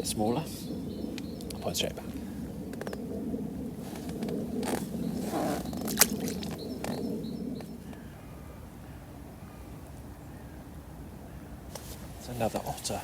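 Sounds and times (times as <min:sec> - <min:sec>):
low rustle: 0:00.0 - 0:08.6, 0:11.7 - 0:12.7.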